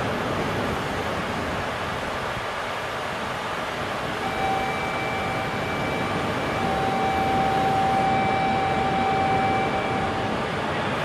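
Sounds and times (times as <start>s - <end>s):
train rushing noise: 0.0s - 11.0s
high-pitched tone: 4.2s - 10.8s.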